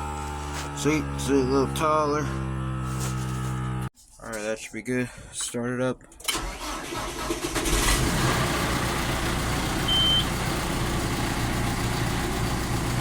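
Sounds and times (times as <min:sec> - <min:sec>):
diesel tractor starting and idling: 0:00.0 - 0:03.9, 0:06.0 - 0:13.0
short electronic beep: 0:09.9 - 0:10.3.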